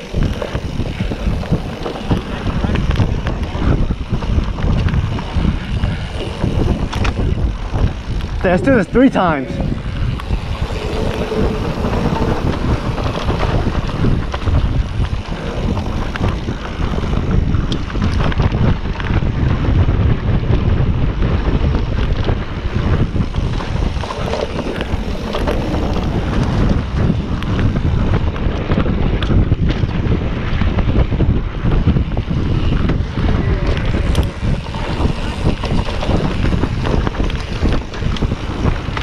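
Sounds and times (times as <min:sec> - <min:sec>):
small clicks and rattles: 0:00.0 - 0:08.5
tyre rumble: 0:00.0 - 0:39.0
wind on microphone: 0:00.0 - 0:39.0.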